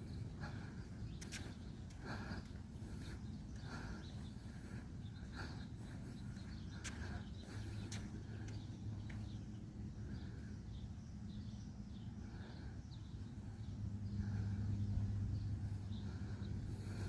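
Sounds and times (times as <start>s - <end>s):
aircraft engine hum and airflow: 0.0s - 17.0s.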